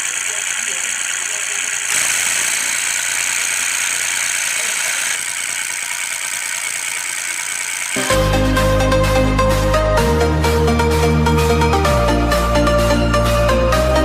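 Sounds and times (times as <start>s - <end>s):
toy motor whirring: 0.0s - 8.2s
electronic music: 8.0s - 14.0s.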